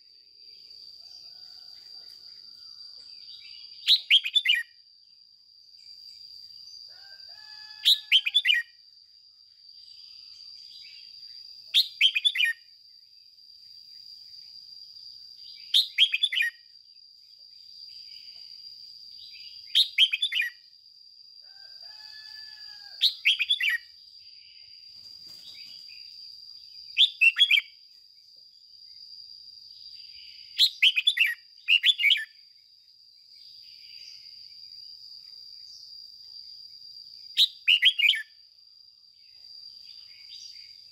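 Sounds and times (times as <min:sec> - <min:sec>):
bird singing bright phrases: 0:03.1 - 0:04.7, 0:09.8 - 0:12.6, 0:15.4 - 0:16.6, 0:19.2 - 0:20.6, 0:25.4 - 0:27.7, 0:30.1 - 0:32.4.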